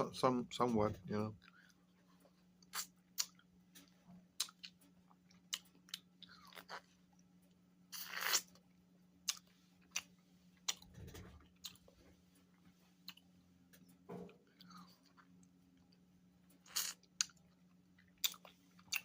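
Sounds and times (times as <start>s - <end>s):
faint steady hum: 0.0s - 19.0s
person crunching frozen fruit bar: 7.9s - 10.8s, 16.6s - 19.0s.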